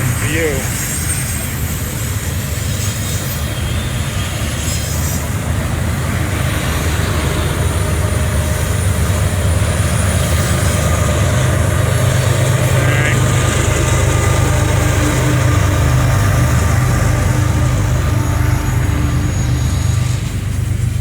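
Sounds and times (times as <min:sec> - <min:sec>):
freight train rumbling by: 0:00.0 - 0:21.0.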